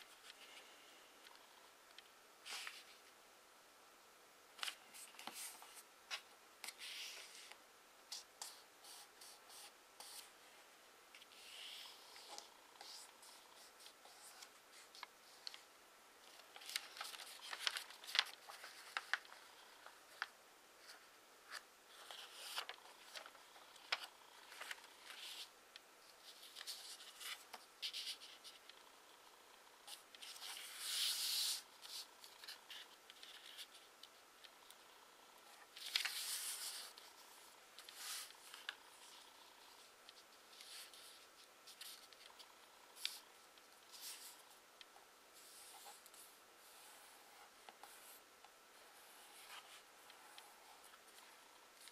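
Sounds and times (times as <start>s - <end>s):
paper crinkling: 16.3s - 25.5s, 35.6s - 37.1s.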